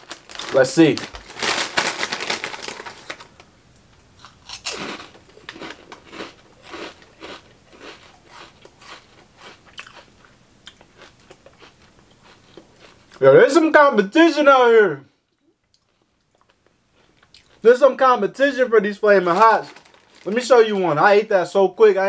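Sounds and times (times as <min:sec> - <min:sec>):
crunchy snack chewing: 0:04.2 - 0:13.2.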